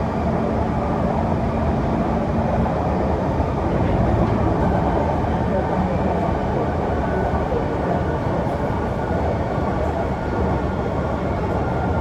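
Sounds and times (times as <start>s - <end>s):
train wheels rumbling on rails: 2.2s - 10.6s.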